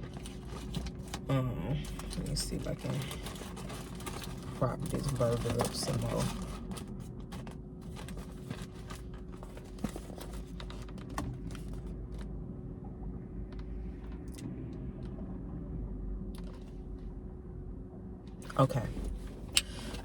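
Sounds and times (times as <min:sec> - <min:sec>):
food packaging clicks and rustles: 0:00.0 - 0:11.9
faint steady hum: 0:00.0 - 0:20.0.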